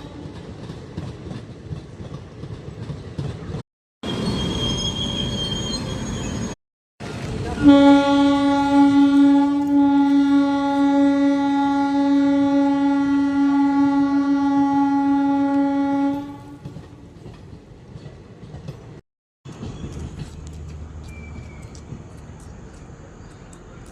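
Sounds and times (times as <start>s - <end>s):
train rumble: 0.0s - 23.9s
electric locomotive horn blast: 7.6s - 16.6s.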